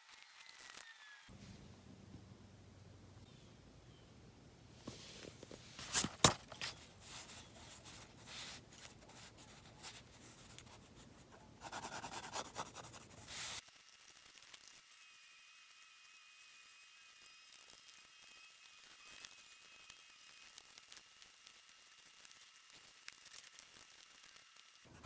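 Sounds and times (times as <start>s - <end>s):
quick scribbling: 4.8s - 13.6s
pencil scratching on paper: 4.9s - 13.6s.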